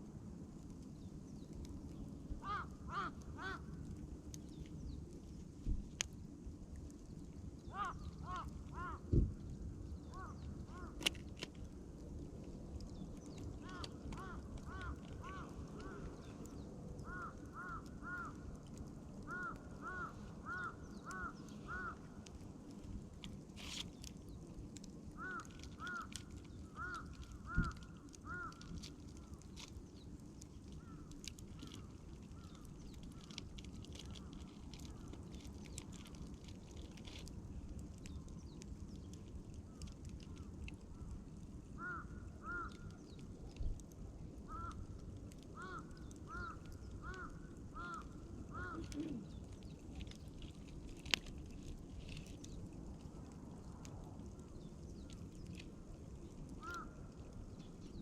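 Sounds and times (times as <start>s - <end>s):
campfire crackling and popping: 0.0s - 58.0s
steady low rumble: 0.0s - 58.0s.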